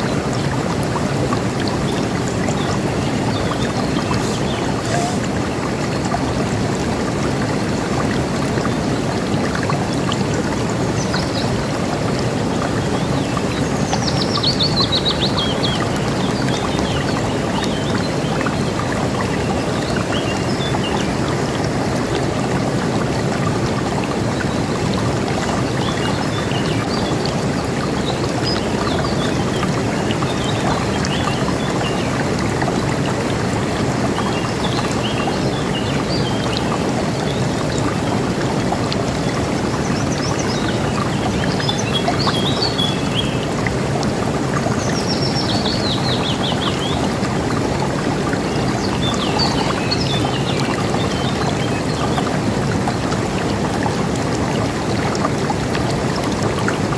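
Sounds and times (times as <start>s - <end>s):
river rushing: 0.0s - 12.8s
birds chirping: 2.6s - 5.6s.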